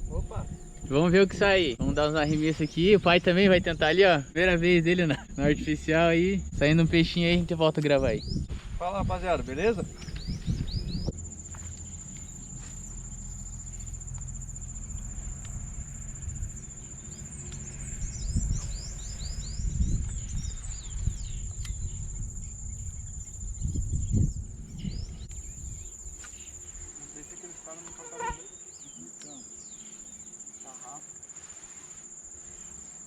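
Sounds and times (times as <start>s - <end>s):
low rumbles: 0.0s - 26.9s
insects trilling: 0.0s - 33.0s
bird chirps: 9.6s - 14.1s, 16.2s - 31.0s.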